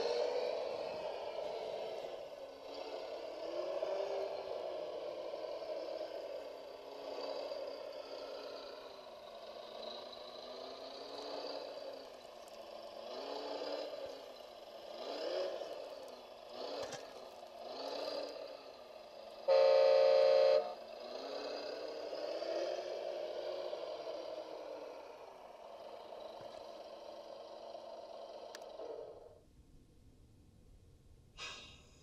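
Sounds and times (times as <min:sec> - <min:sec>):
loud horn blast: 0:19.5 - 0:20.8.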